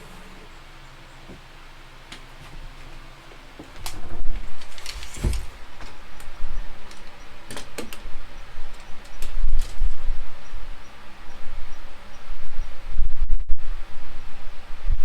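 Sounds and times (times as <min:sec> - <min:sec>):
sharp clicks and knocks: 0:03.6 - 0:10.0.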